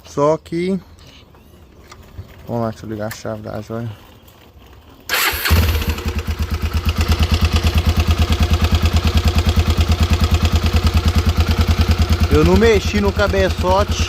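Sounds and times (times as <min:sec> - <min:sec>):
motorcycle engine idling: 0:05.1 - 0:14.0.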